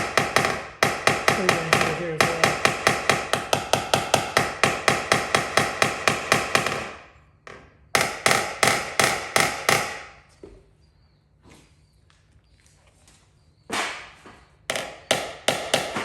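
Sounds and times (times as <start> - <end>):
hammer tapping on sheet metal: 0.0 - 10.2, 14.7 - 16.0.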